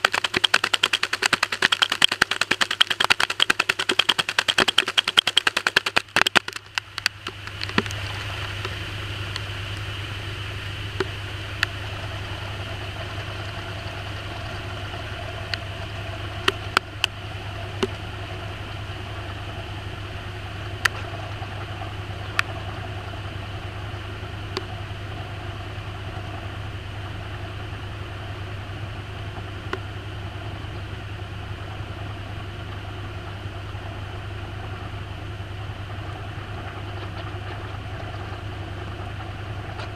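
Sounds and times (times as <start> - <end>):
sharp ticks: 0.0 - 8.0
rapid clicks: 0.0 - 9.8
washing machine motor hum: 0.0 - 39.9.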